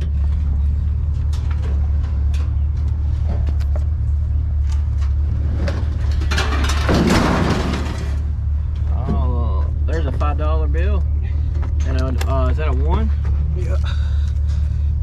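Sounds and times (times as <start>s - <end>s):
vehicle engine idling: 0.0s - 15.0s
scraping rattle: 4.6s - 8.9s.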